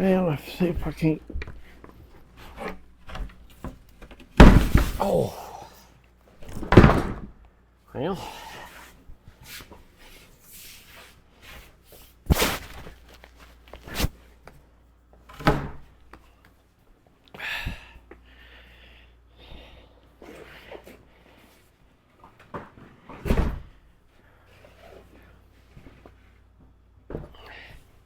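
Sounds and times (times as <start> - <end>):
plywood sheet banging: 4.4 - 5.3
scraping and shuffling: 8.7 - 14.2.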